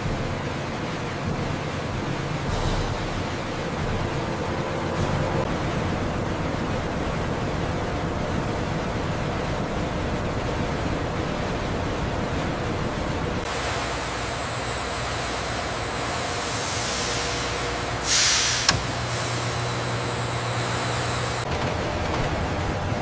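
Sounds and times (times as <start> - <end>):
industrial machinery noise: 0.0 - 23.0
loud hiss: 13.5 - 21.5.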